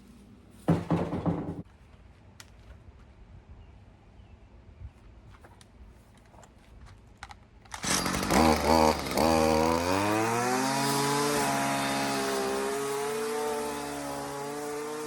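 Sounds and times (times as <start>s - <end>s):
string trimmer engine running: 7.7s - 15.0s.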